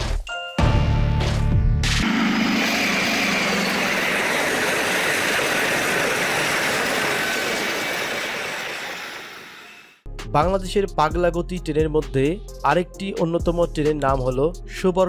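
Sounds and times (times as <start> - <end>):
diesel locomotive engine drone: 1.9 - 10.0.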